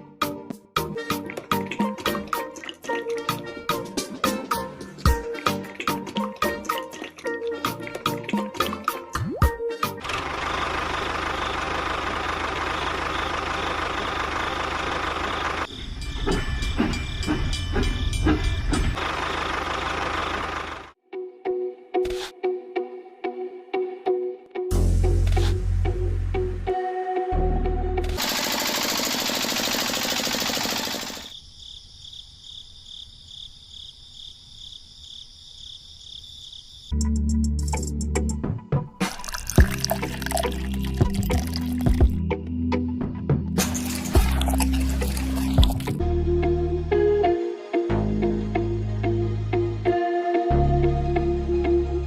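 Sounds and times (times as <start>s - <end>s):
tractor engine chugging: 10.1s - 21.0s, 28.2s - 31.3s
insects chirring: 15.7s - 18.9s, 30.9s - 37.0s
fast mechanical rattle: 28.2s - 31.3s.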